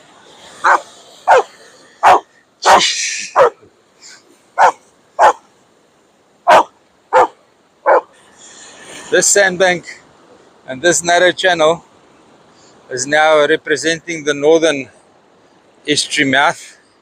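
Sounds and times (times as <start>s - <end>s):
dog barking: 0.6s - 3.6s, 4.6s - 5.4s, 6.5s - 8.1s.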